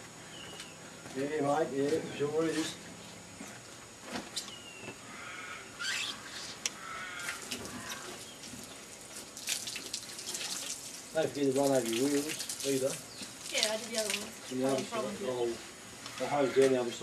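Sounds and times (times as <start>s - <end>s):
hose water splashing on car: 7.2s - 14.9s.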